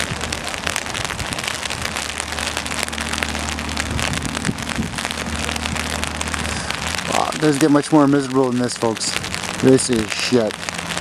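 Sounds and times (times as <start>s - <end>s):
steady low hum: 0.0s - 8.2s
heavy rain falling: 0.0s - 11.0s.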